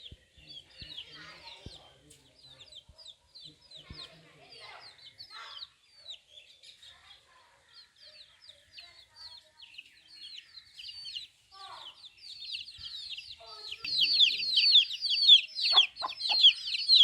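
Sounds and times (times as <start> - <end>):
chicks peeping: 0.0 - 6.9, 8.0 - 17.0
lower chick calls: 12.3 - 17.0.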